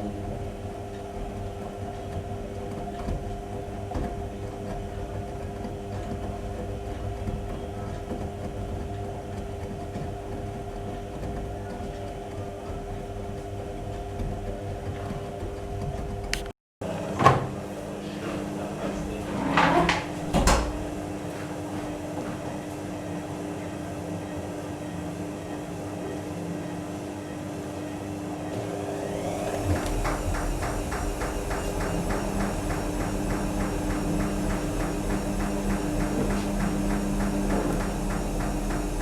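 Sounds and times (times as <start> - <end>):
washing machine humming: 0.0 - 39.0
washing machine knocks: 19.4 - 21.0, 29.1 - 39.0
regular ticking: 29.5 - 39.0.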